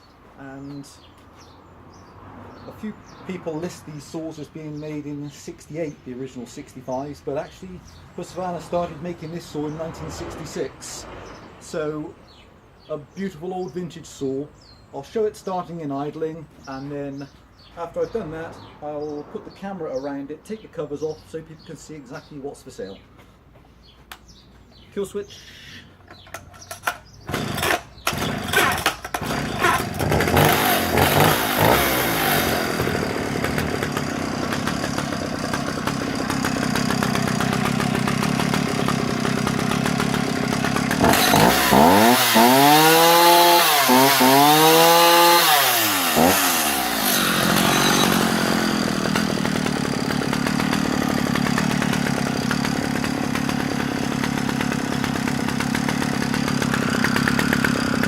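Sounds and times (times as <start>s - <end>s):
chainsaw engine idling and revving: 0.5s - 12.4s, 16.0s - 20.7s, 26.1s - 58.0s
starter cord pulls: 26.0s - 58.0s.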